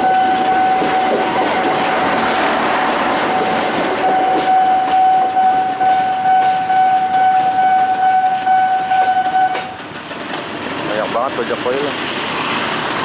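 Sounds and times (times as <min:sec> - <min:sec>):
steady high-pitched tone: 0:00.0 - 0:09.8
freight train wheels clacking: 0:00.0 - 0:13.0.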